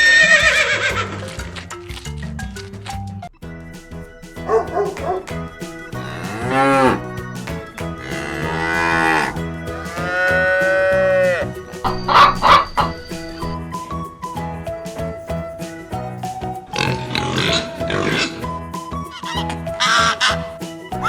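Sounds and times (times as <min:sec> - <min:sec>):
background music: 0:00.0 - 0:21.0
cows mooing: 0:05.9 - 0:07.3, 0:07.9 - 0:13.5.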